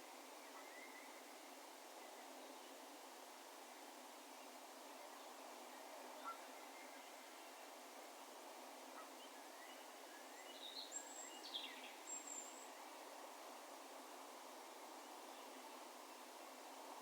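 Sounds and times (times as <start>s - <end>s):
faint outdoor background hiss: 0.0s - 17.0s.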